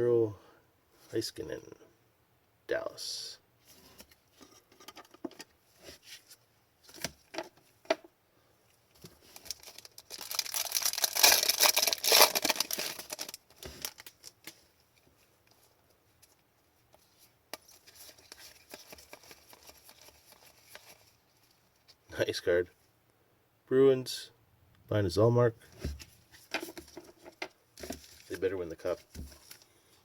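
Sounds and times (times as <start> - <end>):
cards clicking and rustling: 9.0 - 14.6, 17.5 - 21.1, 26.4 - 29.7
card pack wrapper crinkling: 9.2 - 14.6, 17.6 - 21.2, 29.0 - 29.7.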